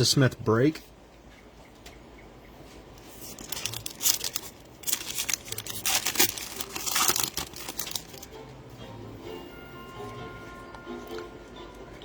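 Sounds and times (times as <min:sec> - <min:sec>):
plastic wrapping tearing and crinkling: 0:03.0 - 0:08.3.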